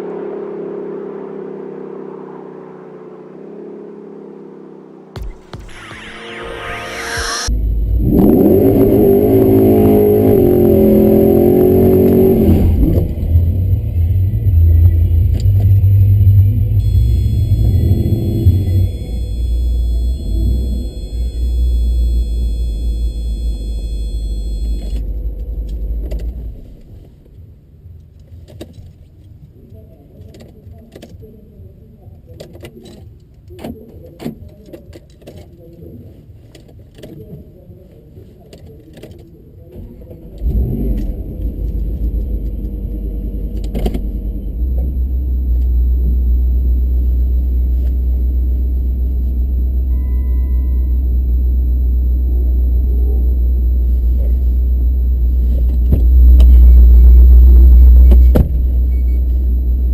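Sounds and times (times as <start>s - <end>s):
car engine rumbling: 7.5s - 29.5s, 39.6s - 59.9s.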